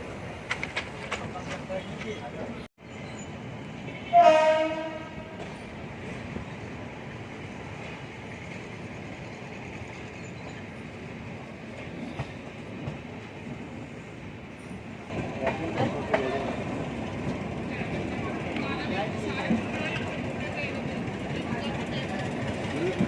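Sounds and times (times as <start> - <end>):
train wheels rumbling and rattling: 0.0 - 23.0.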